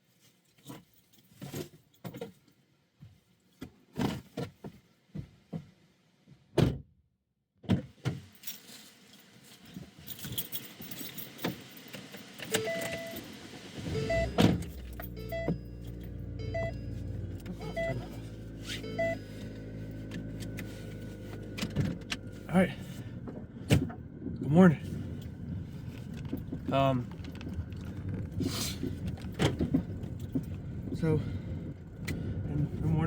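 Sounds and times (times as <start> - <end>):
keys jangling: 10.0 - 13.3
car engine starting and running: 11.4 - 33.0
dashboard warning chimes beeping: 12.5 - 20.5
clicks and knocks in a car: 25.6 - 32.3.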